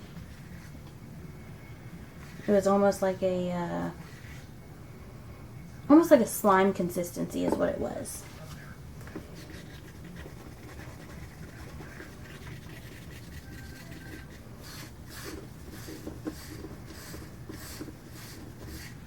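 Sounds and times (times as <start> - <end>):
low steady hum: 0.0 - 19.0
stick scraping resin in cup: 9.2 - 19.0.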